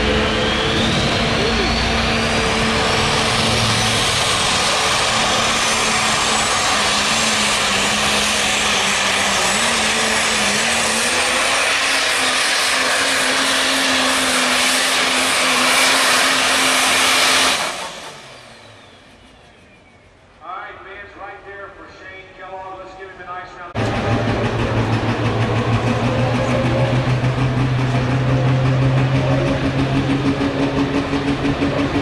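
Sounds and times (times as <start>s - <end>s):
turbo whistle: 0.0s - 2.2s
diesel truck engine at full throttle: 0.0s - 20.4s, 23.7s - 32.0s.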